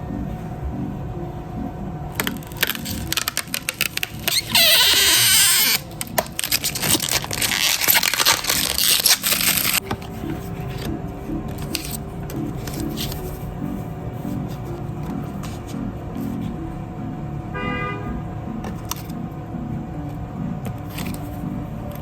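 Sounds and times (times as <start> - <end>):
soft background music: 0.0 - 22.0
plastic film tearing rasp: 2.2 - 9.8
plastic packaging crinkling: 2.2 - 10.2.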